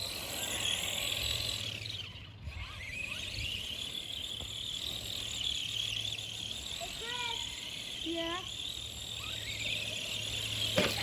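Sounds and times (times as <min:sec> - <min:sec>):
electric motor whine: 0:00.0 - 0:11.0.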